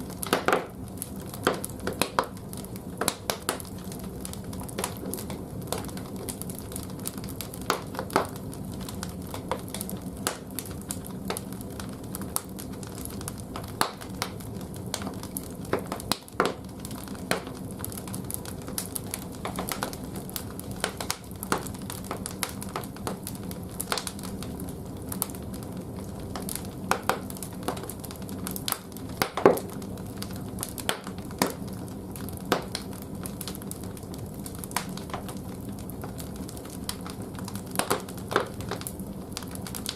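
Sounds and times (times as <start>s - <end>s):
firewood crackling and popping: 0.0s - 39.9s.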